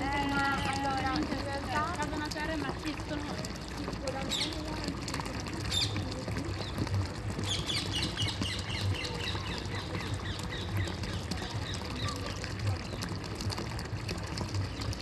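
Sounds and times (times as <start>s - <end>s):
flowing water: 0.0s - 15.0s
birds chirping: 3.2s - 5.0s, 5.6s - 13.2s.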